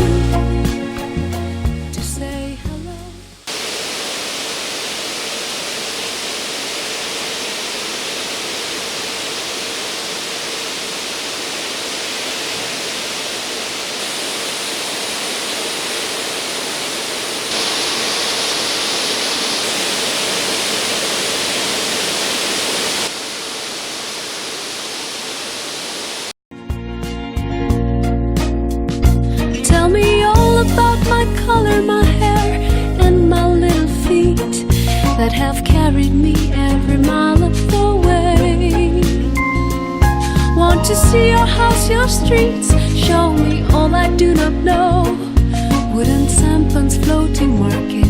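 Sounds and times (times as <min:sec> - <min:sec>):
rushing water: 0:03.5 - 0:26.3.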